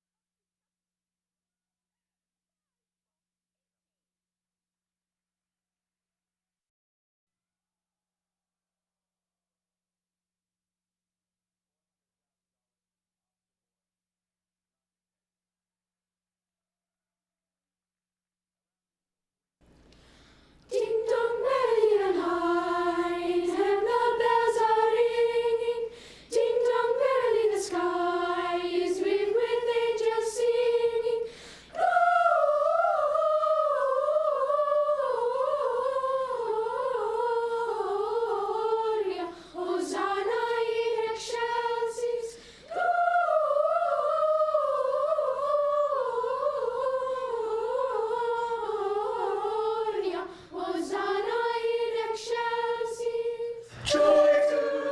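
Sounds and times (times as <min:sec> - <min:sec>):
choir singing a cappella: 0:20.7 - 0:54.9.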